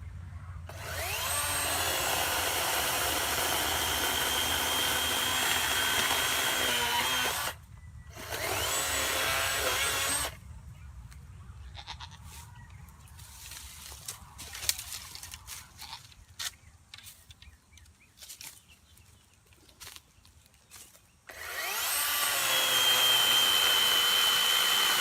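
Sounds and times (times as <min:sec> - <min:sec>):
electric chainsaw motor whine: 0:00.7 - 0:10.4, 0:21.3 - 0:25.0.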